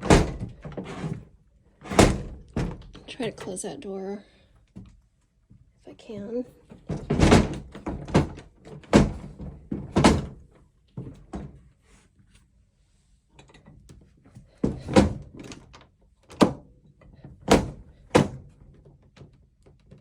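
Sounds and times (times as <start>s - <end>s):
wooden door thudding against frame: 0.0s - 1.0s, 1.8s - 3.0s, 6.9s - 10.4s.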